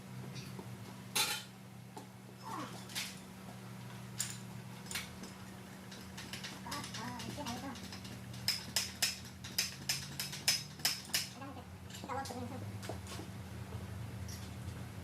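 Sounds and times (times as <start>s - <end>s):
steady low hum: 0.0s - 15.0s
metal tools clinking: 3.9s - 12.4s, 14.2s - 14.6s.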